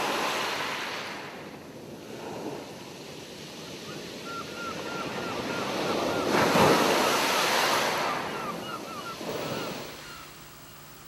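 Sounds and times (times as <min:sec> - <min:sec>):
gulls calling: 0:03.8 - 0:11.0
wave breaking on shore: 0:05.0 - 0:10.2.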